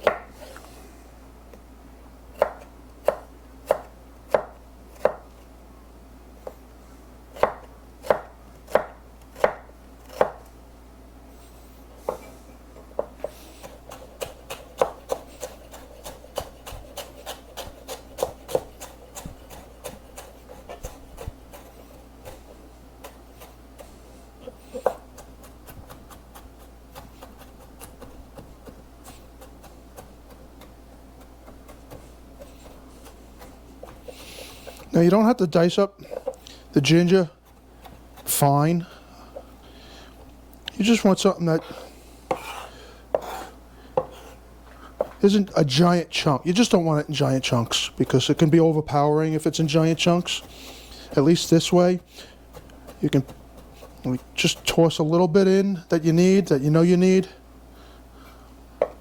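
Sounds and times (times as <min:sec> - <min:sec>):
knife chopping on cutting board: 0:00.0 - 0:00.3, 0:02.4 - 0:05.3, 0:07.4 - 0:10.4, 0:12.9 - 0:34.9, 0:41.6 - 0:44.4, 0:49.6 - 0:54.9, 0:58.8 - 0:59.0.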